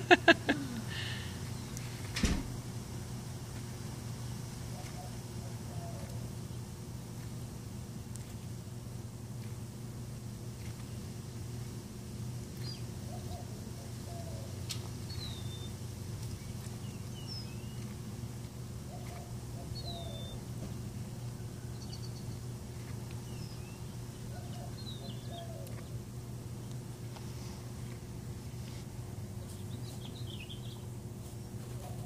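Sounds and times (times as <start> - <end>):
steady low hum: 0.0 - 32.0
bird singing high chirps: 15.1 - 15.8, 16.4 - 17.9, 19.0 - 20.4.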